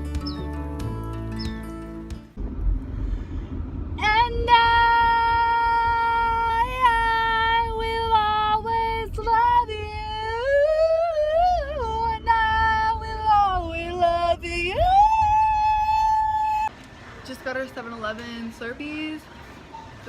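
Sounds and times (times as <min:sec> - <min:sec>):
low rumble: 0:01.9 - 0:16.7.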